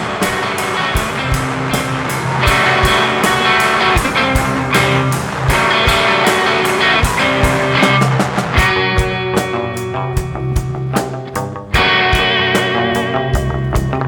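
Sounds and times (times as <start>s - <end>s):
bass notes: 0.0s - 14.0s
electric guitar: 0.0s - 14.0s.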